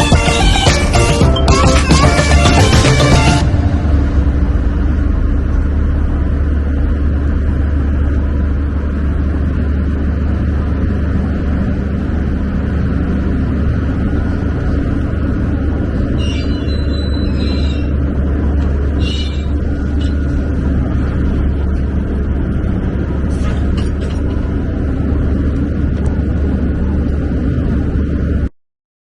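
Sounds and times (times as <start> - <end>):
boat engine rumbling: 0.0 - 28.5.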